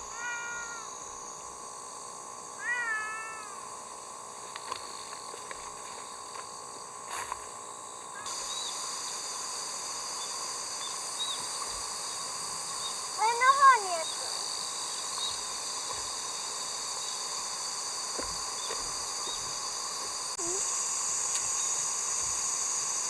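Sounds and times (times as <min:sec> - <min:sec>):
cat meowing: 0:00.1 - 0:00.9, 0:02.6 - 0:03.6.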